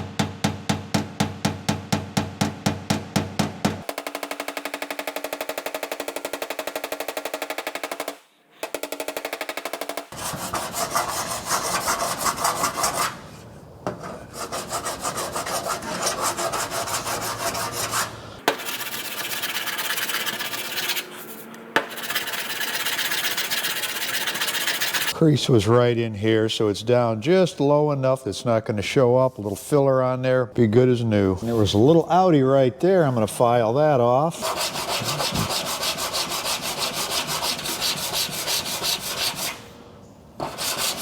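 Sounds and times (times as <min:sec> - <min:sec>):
metal file scraping steel: 0:10.1 - 0:25.2, 0:34.4 - 0:39.7, 0:40.4 - 0:41.0.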